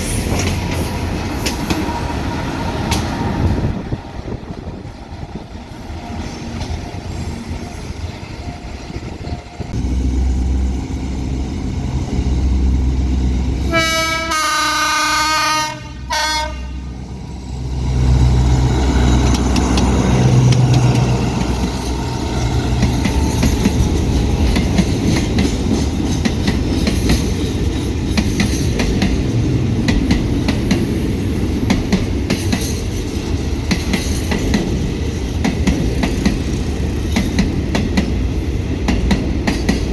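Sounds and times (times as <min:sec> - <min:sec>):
wheels clicking over rail joints: 0:00.0 - 0:02.0, 0:18.7 - 0:30.9
locomotive engine rumbling: 0:00.0 - 0:30.4
train horn blasts: 0:13.6 - 0:17.0.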